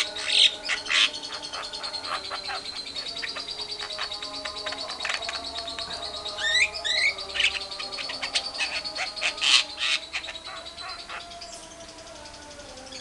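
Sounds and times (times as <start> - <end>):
bird chattering trill: 0.0 - 13.0.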